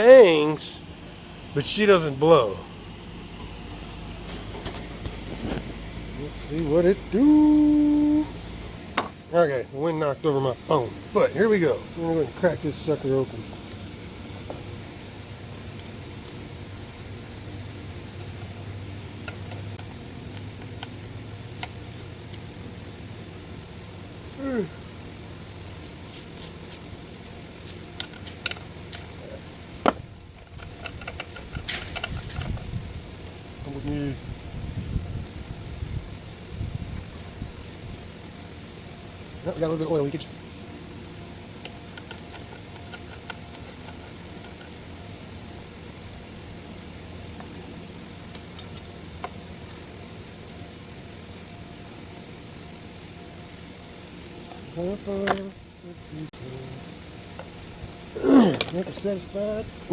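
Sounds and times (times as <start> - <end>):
low machine hum: 0.0 - 59.9
hand tools tapping metal: 8.9 - 9.2.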